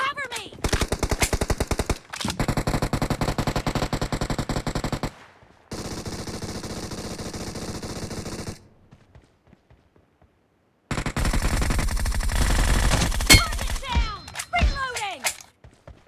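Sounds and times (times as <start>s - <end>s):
video game automatic gunfire: 0.6s - 8.6s, 10.9s - 14.0s.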